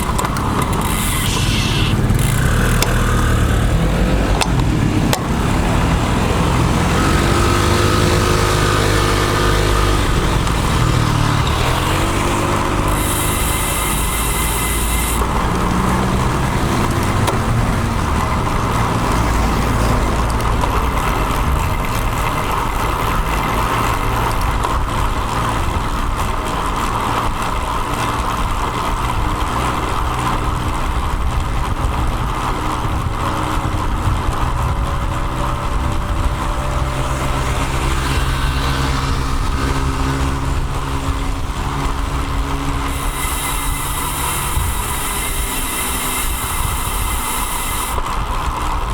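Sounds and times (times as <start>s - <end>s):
motor traffic: 0.0s - 48.9s
vehicle engine tone: 0.0s - 48.9s
wind and tyre rush: 0.0s - 48.9s.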